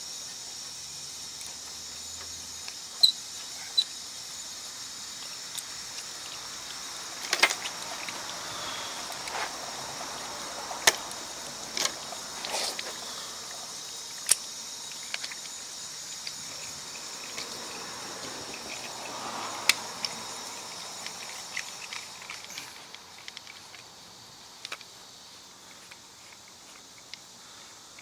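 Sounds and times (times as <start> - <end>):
steady high hiss: 0.0 - 28.0.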